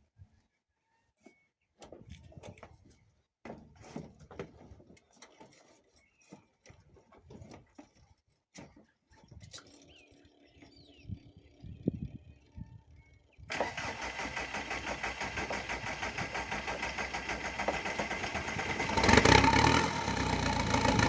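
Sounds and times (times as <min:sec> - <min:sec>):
birds chirping: 0:09.1 - 0:13.5.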